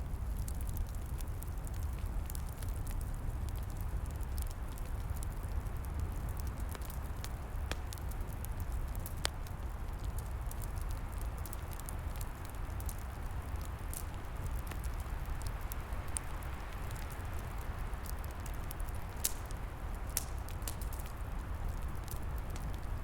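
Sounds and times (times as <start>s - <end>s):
log fire crackling and popping: 0.0s - 23.0s.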